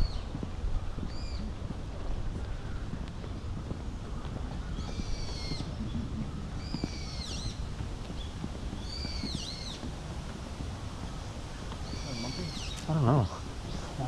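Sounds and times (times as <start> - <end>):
bird calling: 0.0 - 1.5, 4.1 - 10.0, 11.0 - 14.0
steady low rumble: 0.0 - 14.0.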